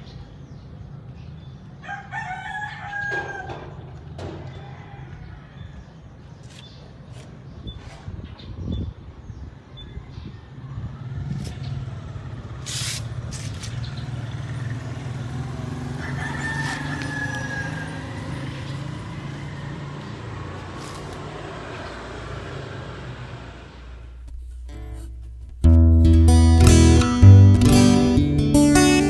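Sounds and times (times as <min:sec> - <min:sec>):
rooster crowing: 0:01.8 - 0:05.8, 0:15.6 - 0:20.2.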